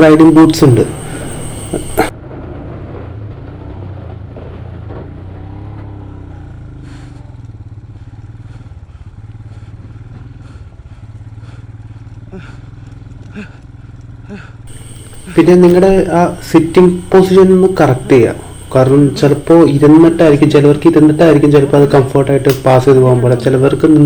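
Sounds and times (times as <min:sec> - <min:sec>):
motorcycle engine running: 0:00.0 - 0:24.0
faint clatter clicks: 0:11.3 - 0:15.3.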